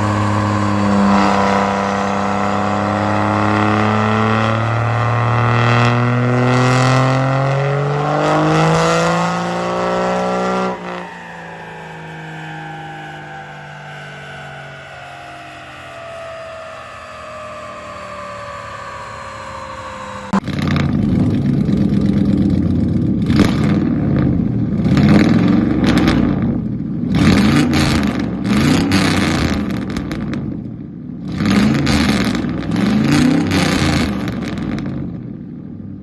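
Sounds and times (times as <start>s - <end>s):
tones falling in pitch: 0.0s - 5.9s, 9.0s - 20.9s
truck engine revving: 0.0s - 36.0s.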